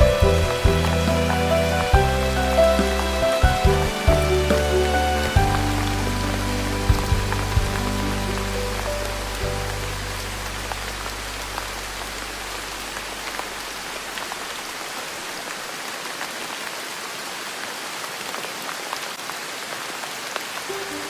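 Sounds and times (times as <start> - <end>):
soft music low notes: 0.0 - 13.6
steady rain falling: 0.0 - 21.0.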